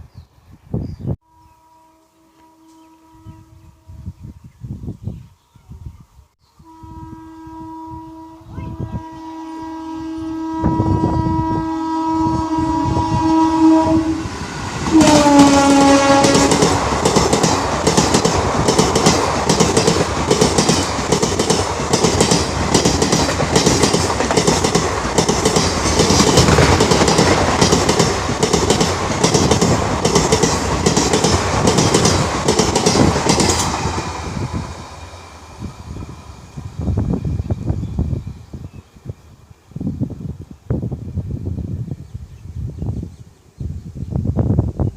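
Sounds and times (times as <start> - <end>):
train horn: 1.2 - 4.2, 6.6 - 16.8.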